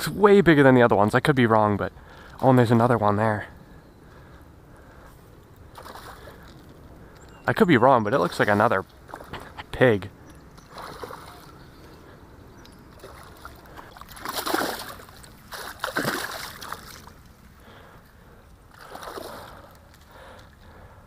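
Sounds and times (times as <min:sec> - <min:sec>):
low steady background noise: 0:00.0 - 0:21.0
water splashing in a creek: 0:05.7 - 0:06.7, 0:08.1 - 0:09.7, 0:10.6 - 0:12.0, 0:12.6 - 0:17.5, 0:18.7 - 0:20.6.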